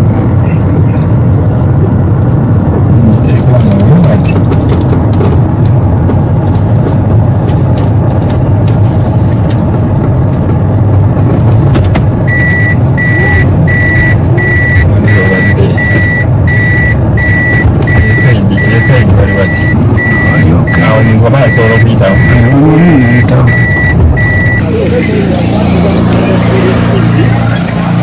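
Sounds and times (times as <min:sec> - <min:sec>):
vehicle engine rumble: 0:00.0 - 0:28.0
electronic warning beeps: 0:12.3 - 0:27.8.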